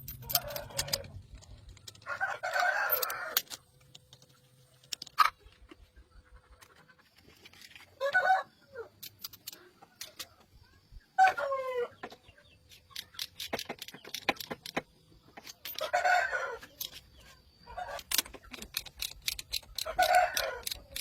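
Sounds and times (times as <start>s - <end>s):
chicken calls: 11.0s - 13.2s.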